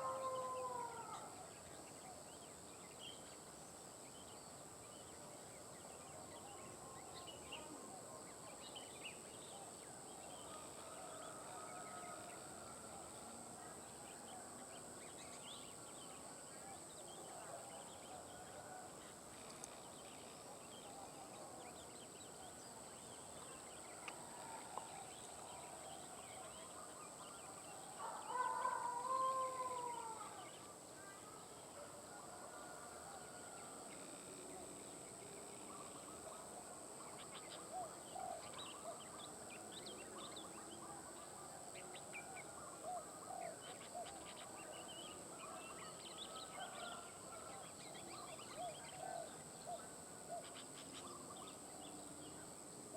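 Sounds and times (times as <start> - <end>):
long rising and falling bird call: 28.0 - 30.4.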